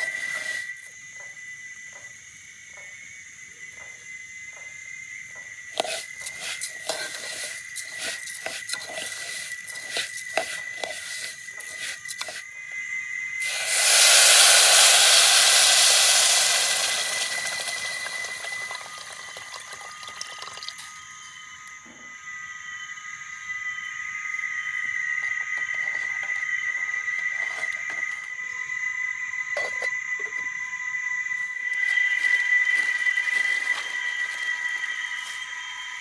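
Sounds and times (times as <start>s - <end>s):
loud sizzling hiss: 13.4s - 20.6s
oil crackling: 13.4s - 21.0s.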